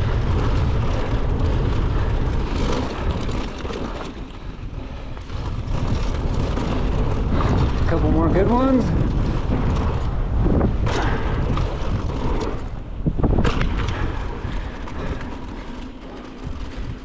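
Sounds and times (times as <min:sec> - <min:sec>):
bike knocking and rattling: 0:00.0 - 0:17.0
tyres rolling on dirt: 0:00.0 - 0:17.0
wind rushing over microphone: 0:00.0 - 0:17.0.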